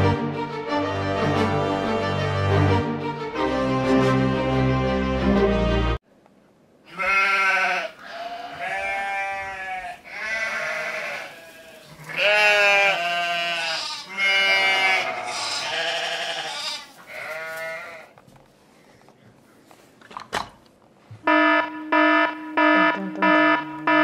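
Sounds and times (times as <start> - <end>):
wavering bleat-like calls: 6.9 - 18.1.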